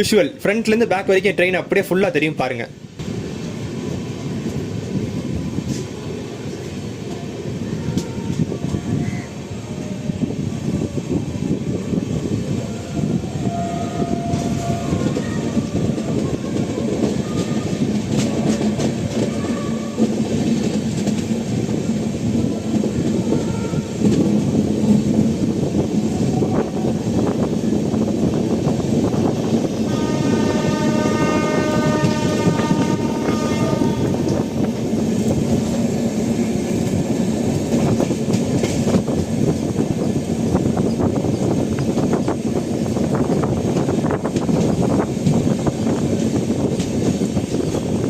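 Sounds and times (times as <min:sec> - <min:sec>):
train rumble and wheel clatter: 0:00.0 - 0:48.0
train horn: 0:13.2 - 0:15.7, 0:19.1 - 0:20.1, 0:23.3 - 0:24.0, 0:29.9 - 0:34.7.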